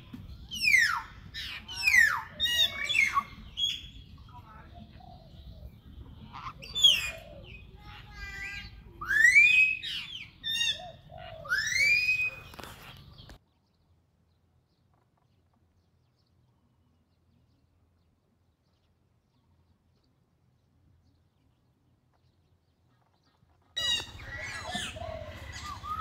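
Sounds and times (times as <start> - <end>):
bird calls: 0.0 - 13.9, 21.0 - 26.0.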